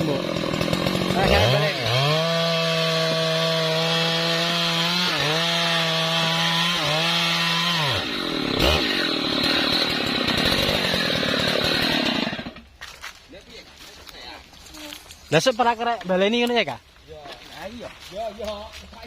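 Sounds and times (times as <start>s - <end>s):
chainsaw cutting wood: 0.0s - 12.8s.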